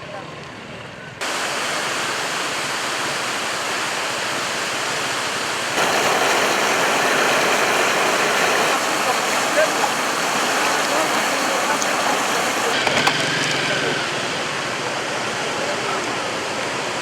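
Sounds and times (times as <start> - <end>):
floodwater rushing: 1.2 - 12.8.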